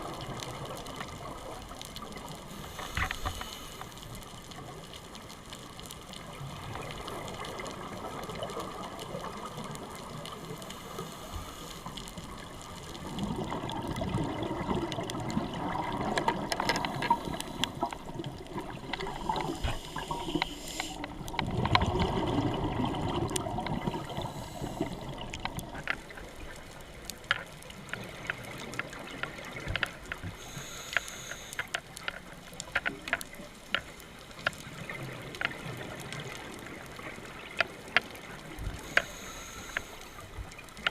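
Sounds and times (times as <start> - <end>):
sharp clicks and crackles: 0.0 - 40.9
underwater watery wash: 0.0 - 40.9
regulator bubbles exhaled: 13.1 - 25.8.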